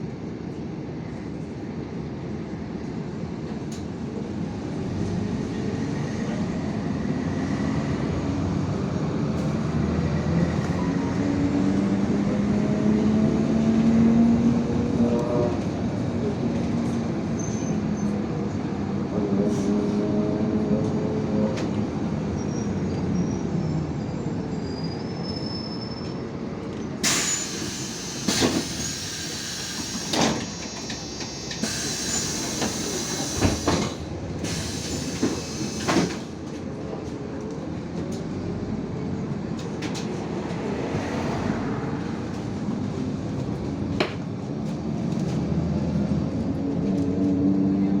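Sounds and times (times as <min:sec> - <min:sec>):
bus engine: 0:00.0 - 0:48.0
pneumatic doors hissing and knocking: 0:27.0 - 0:36.4.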